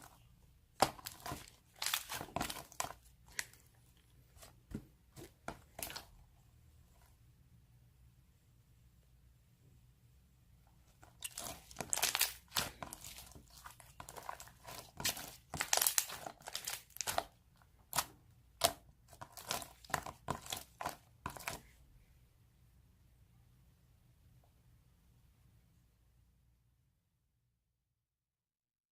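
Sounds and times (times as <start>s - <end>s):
crinkling and rustling: 0.0s - 6.2s, 10.8s - 21.8s.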